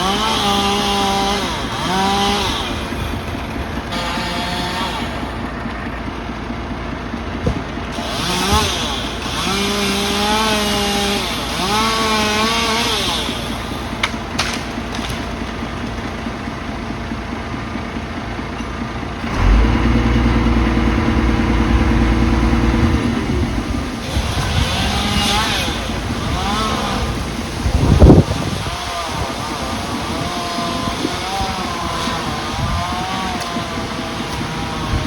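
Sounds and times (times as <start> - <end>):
chainsaw revving: 0.0 - 35.0
deeper engine: 0.0 - 35.0
heavy machine engine running: 0.0 - 35.0
sharp cracks: 13.9 - 15.6.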